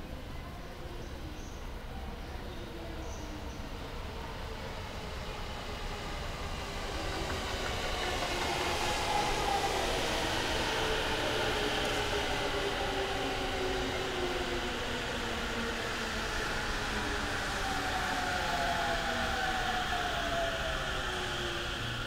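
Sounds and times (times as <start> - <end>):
train wheels on rails: 5.0 - 22.0.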